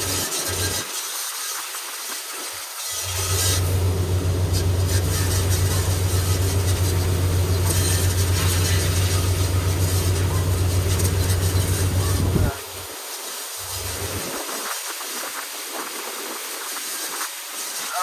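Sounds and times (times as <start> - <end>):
machine humming loudly: 2.9 - 12.9, 13.6 - 14.3.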